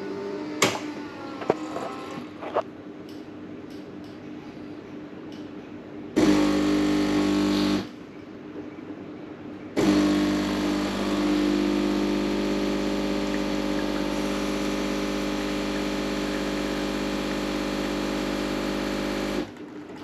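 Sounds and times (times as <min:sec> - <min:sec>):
espresso machine pump humming: 0:06.2 - 0:07.8, 0:09.8 - 0:19.5.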